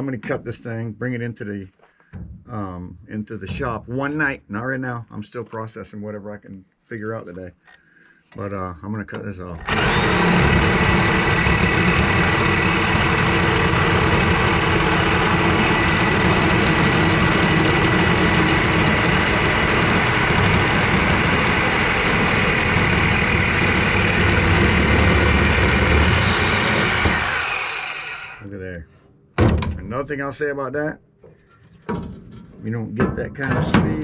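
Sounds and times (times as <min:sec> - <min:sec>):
reciprocating saw motor whine: 0:09.6 - 0:28.5.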